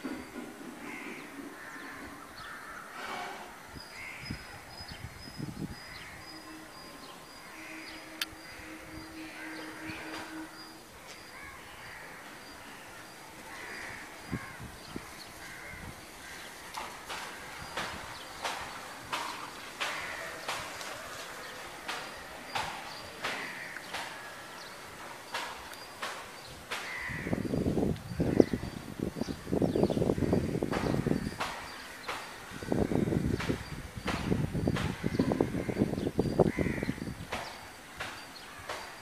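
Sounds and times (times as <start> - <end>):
bird calls: 0.0 - 39.0
sharp knocks: 16.7 - 20.8, 21.8 - 24.3, 25.3 - 27.6, 30.2 - 36.0, 37.0 - 39.0.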